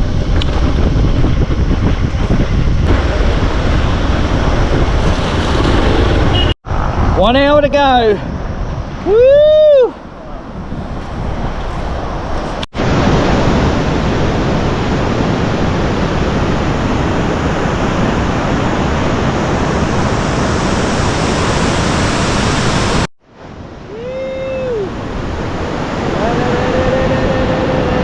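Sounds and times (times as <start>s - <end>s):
wind buffeting microphone: 0.0s - 28.0s
short rising whoop: 9.0s - 10.1s, 23.8s - 25.0s.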